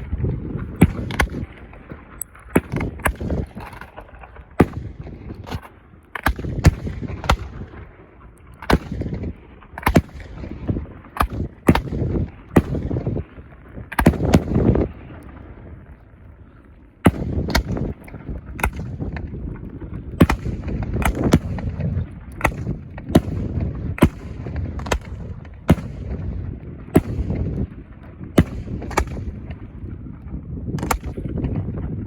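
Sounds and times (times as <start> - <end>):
fireworks bangs and cracks: 0.0 - 8.0, 8.6 - 16.0, 17.1 - 32.0.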